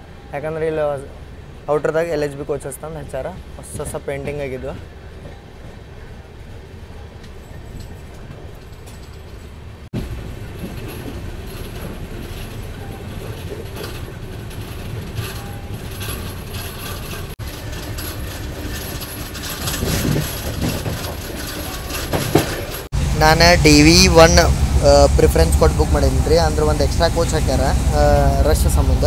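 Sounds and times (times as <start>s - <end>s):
train wheels rumbling on rails: 0.0s - 29.0s
wheels clattering over rail joints: 1.8s - 29.0s.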